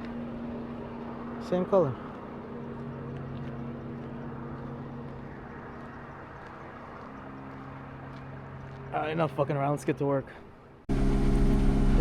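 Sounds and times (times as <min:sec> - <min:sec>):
engine idling: 0:10.9 - 0:12.0.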